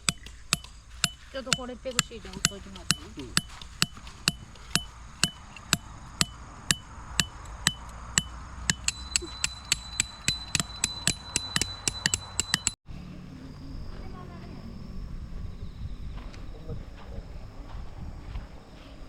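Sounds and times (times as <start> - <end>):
hammer striking metal tent pegs: 0.0 - 12.8
thin steady ringing tone: 0.0 - 16.3.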